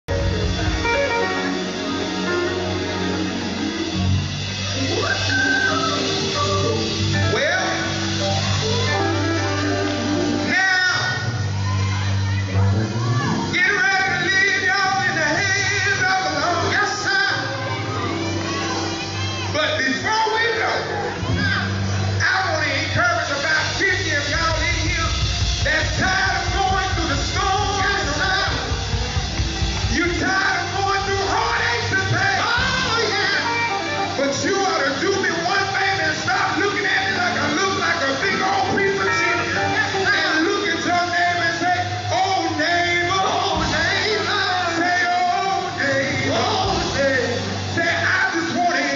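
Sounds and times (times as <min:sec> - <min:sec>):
bass line: 0:00.0 - 0:48.9
guitar: 0:00.1 - 0:48.9
gospel group singing: 0:29.6 - 0:48.9.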